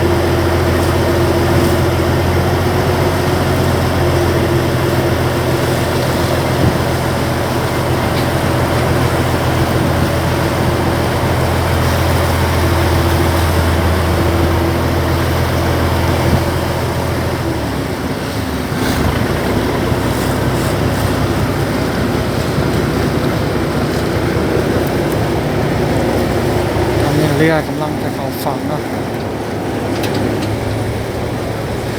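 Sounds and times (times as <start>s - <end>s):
boat engine running: 0.0s - 31.9s
water rushing: 0.0s - 31.9s
wind on microphone: 3.4s - 27.5s.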